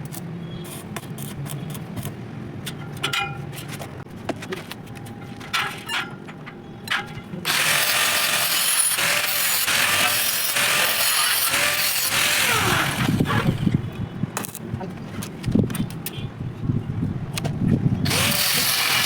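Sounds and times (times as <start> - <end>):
angle grinder cutting steel: 7.5 - 13.6, 18.1 - 19.0.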